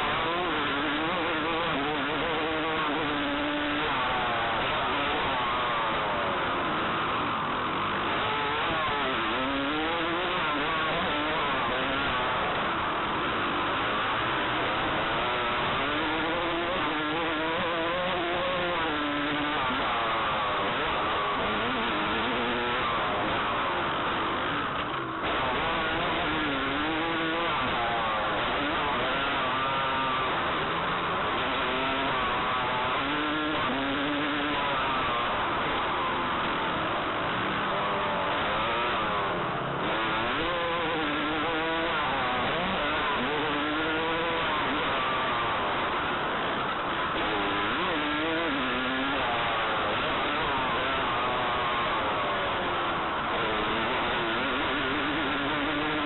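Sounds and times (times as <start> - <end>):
constant rushing noise: 0.0 - 56.0
dirt bike engine revving: 0.0 - 56.0.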